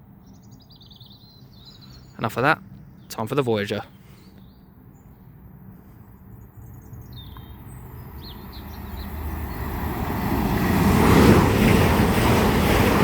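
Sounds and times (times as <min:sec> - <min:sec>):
train passing at speed: 0:04.8 - 0:13.0.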